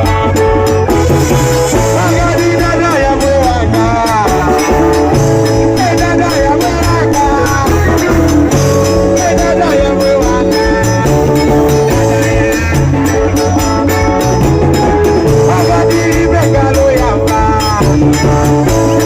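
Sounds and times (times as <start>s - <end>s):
live band music: 0.0s - 19.0s
person singing: 0.0s - 19.0s.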